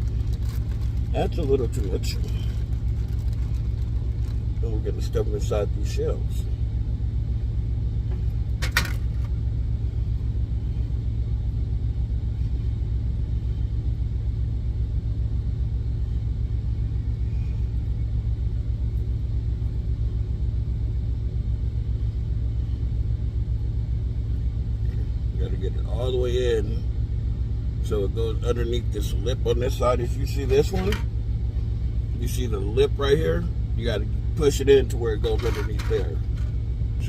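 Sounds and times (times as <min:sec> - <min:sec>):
truck diesel engine idling: 0:00.0 - 0:37.0.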